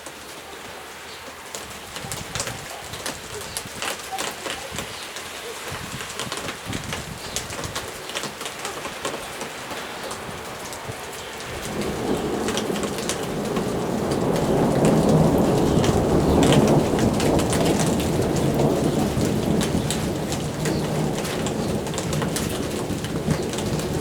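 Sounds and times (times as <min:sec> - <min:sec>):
rain drops falling: 0:00.0 - 0:24.0
thunder rumbling: 0:05.8 - 0:24.0.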